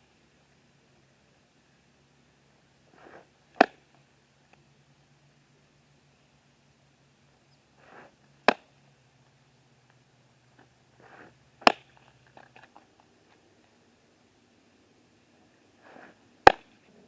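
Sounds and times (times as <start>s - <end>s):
faint hum: 0.0s - 17.0s
ball popping into catcher's mitt: 8.4s - 8.7s, 11.6s - 12.0s, 16.4s - 16.7s.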